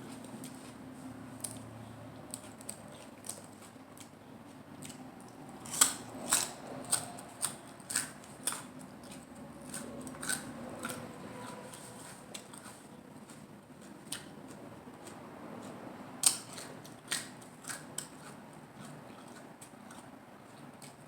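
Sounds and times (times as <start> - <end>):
crisp lettuce crunching: 4.8 - 21.0.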